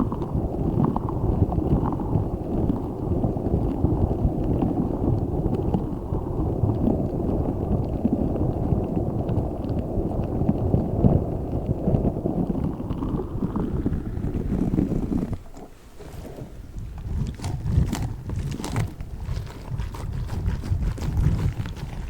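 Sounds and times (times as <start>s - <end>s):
stress ball squishing: 12.6s - 22.0s.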